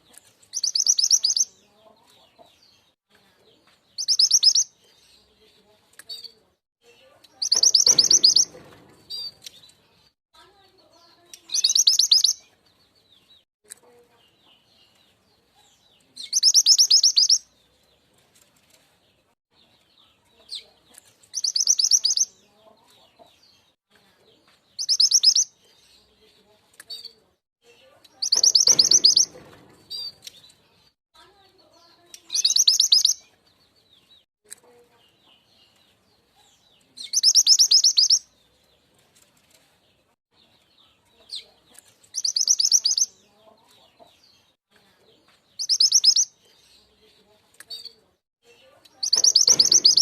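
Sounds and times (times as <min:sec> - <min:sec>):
bird trilling song: 0:00.4 - 0:01.7, 0:03.9 - 0:05.4, 0:06.0 - 0:10.1, 0:11.1 - 0:13.4, 0:14.2 - 0:17.9, 0:19.6 - 0:22.5, 0:24.7 - 0:26.2, 0:26.9 - 0:30.9, 0:32.0 - 0:34.2, 0:34.9 - 0:38.7, 0:40.4 - 0:43.3, 0:43.9 - 0:50.0
faint bird chirps: 0:00.5 - 0:02.1, 0:04.0 - 0:05.4, 0:06.1 - 0:09.6, 0:11.0 - 0:12.4, 0:15.6 - 0:17.4, 0:21.3 - 0:22.9, 0:24.8 - 0:26.2, 0:26.9 - 0:30.5, 0:31.8 - 0:33.3, 0:36.4 - 0:38.3, 0:40.8 - 0:43.4, 0:44.8 - 0:47.0, 0:47.7 - 0:50.0.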